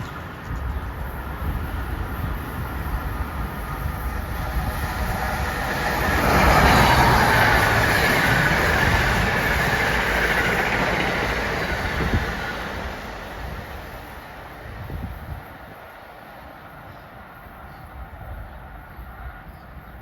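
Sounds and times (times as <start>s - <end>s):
train passing at speed: 0.0s - 20.0s.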